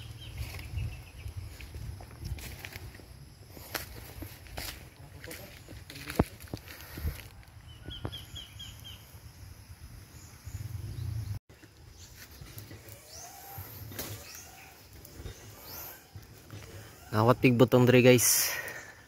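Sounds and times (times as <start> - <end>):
small bird chirping: 0.0 - 2.0, 7.6 - 9.3, 10.1 - 17.2.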